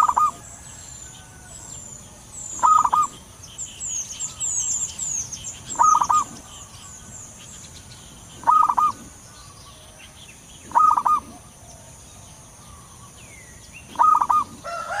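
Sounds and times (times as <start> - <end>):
dove cooing: 0.0 - 1.5, 2.5 - 3.2, 5.6 - 6.7, 8.4 - 9.8, 10.6 - 12.0, 13.9 - 15.0
small birds twittering: 0.0 - 15.0.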